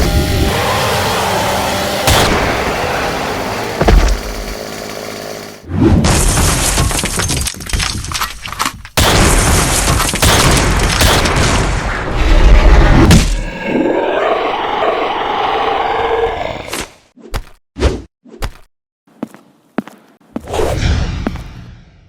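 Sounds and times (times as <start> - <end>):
smashing and breaking noise: 3.8 - 4.7, 6.0 - 11.9.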